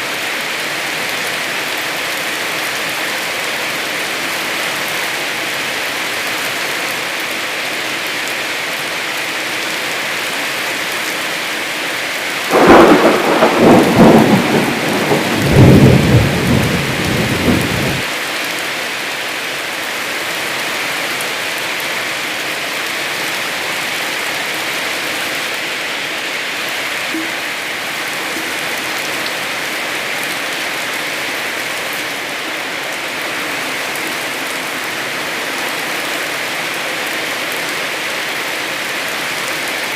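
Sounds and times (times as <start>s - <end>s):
heavy rain: 0.0s - 39.9s
thunder crack and rumble: 12.5s - 18.1s.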